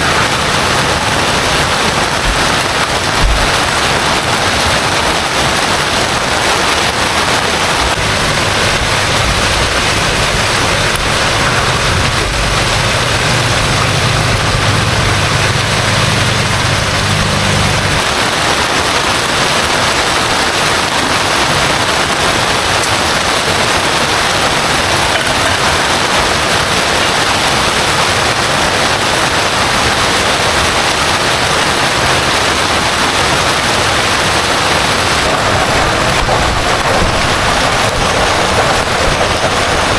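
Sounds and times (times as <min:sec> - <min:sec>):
heavy rain falling: 0:00.0 - 0:39.9
low rumble: 0:00.2 - 0:05.3, 0:07.8 - 0:18.3, 0:35.0 - 0:39.9.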